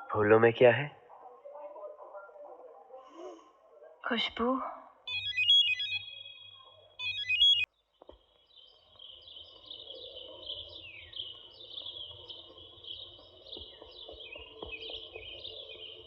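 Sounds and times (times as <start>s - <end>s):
birds chirping: 0.0s - 16.0s
telephone ringing: 5.1s - 7.6s.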